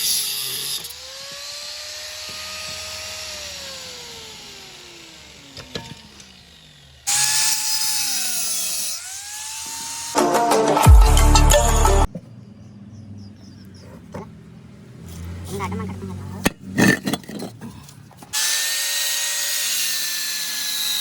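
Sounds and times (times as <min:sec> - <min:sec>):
electric cutter hissing on steel: 0:00.0 - 0:10.2, 0:18.4 - 0:21.0
cutter motor whine: 0:00.0 - 0:12.1.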